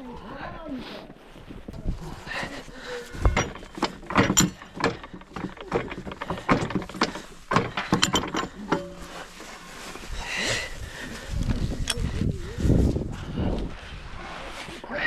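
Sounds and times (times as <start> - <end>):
hard objects knocking and clinking: 3.2 - 9.4.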